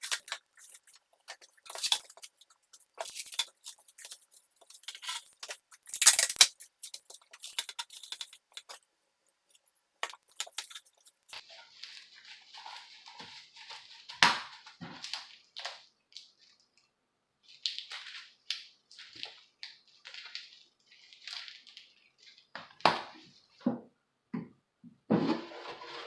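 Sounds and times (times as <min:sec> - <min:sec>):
hands scraping and rustling: 0:00.0 - 0:08.8, 0:09.4 - 0:15.8, 0:25.1 - 0:26.0.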